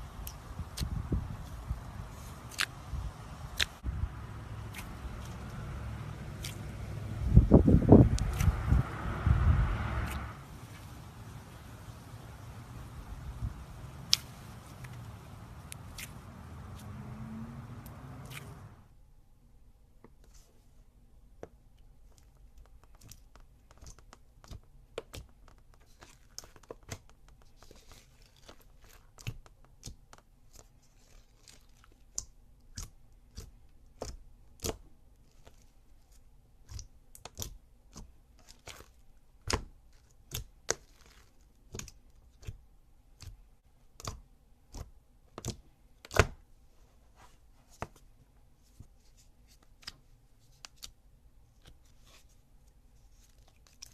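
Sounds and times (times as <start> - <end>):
slime popping and clicking: 14.1 - 15.0.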